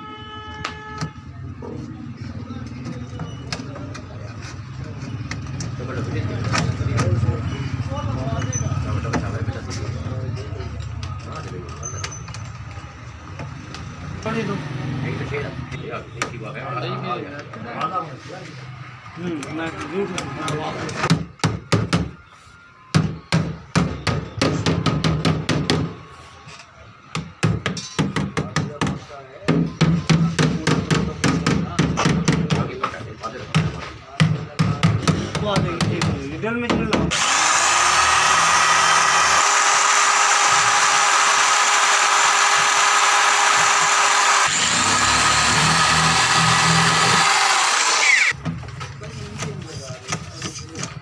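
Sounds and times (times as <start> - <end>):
power tool on sheet metal: 37.1 - 48.4.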